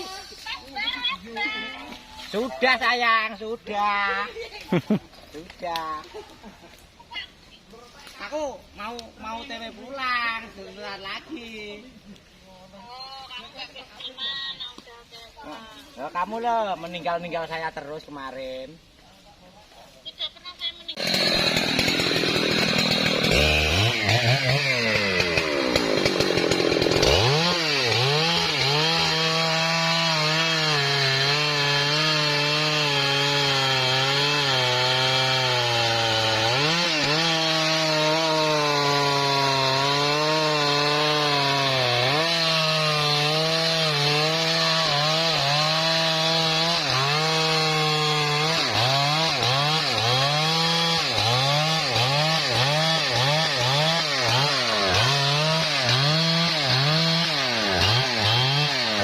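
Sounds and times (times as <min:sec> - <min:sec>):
chainsaw cutting log: 0:21.0 - 0:59.0.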